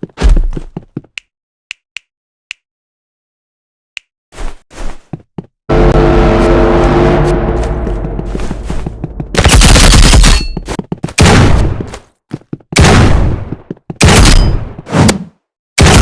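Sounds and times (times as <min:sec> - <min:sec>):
loud bangs: 0:05.7 - 0:10.6.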